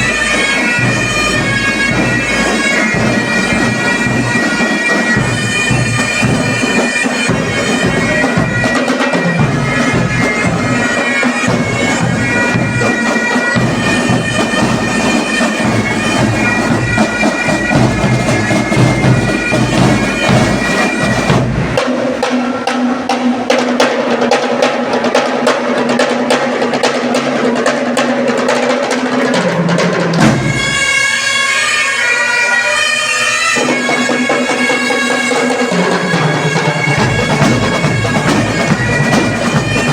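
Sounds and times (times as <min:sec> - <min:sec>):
bagpipes playing over drone: 0:00.0 - 0:21.6, 0:30.3 - 0:39.9
drums beating: 0:00.0 - 0:32.3, 0:33.0 - 0:39.9.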